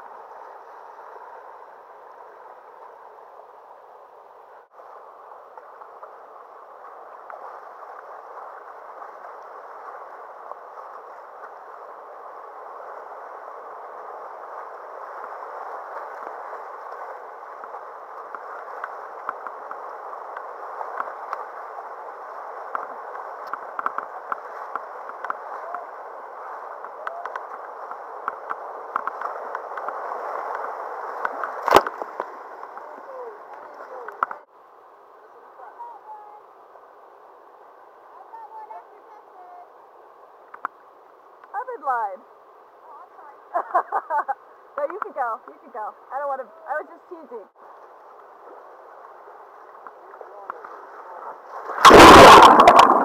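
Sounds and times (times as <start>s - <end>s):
splashes and knocks: 26.8s - 32.4s, 51.6s - 53.0s
river water rushing: 51.7s - 53.0s.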